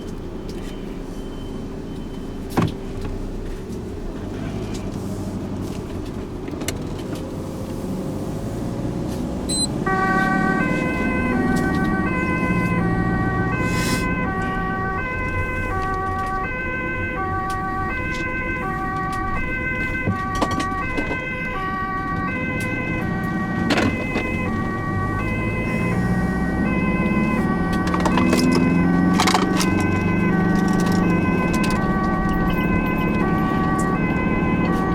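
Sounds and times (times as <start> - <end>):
vehicle engine and road noise: 0.0 - 34.9
ambulance two-tone siren: 8.4 - 34.9.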